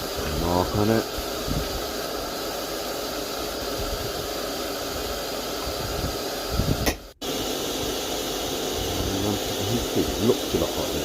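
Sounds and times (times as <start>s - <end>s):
forge flame hissing: 0.0s - 11.0s.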